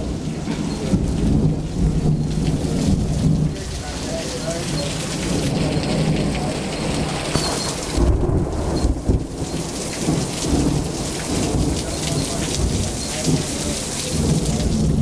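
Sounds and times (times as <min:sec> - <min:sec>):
rain pouring: 0:00.0 - 0:15.0
thunder rumbling: 0:00.0 - 0:15.0.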